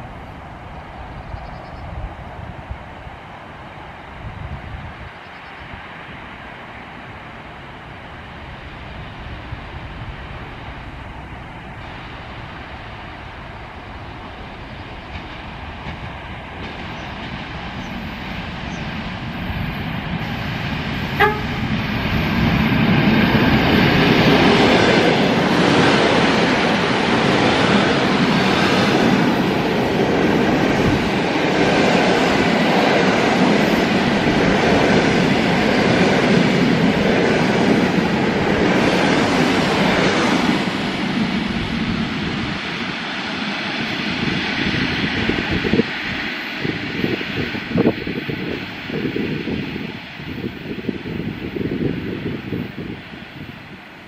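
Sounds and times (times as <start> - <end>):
electric train rumbling on rails: 0.0 - 54.0
train horn toot: 21.1 - 21.7.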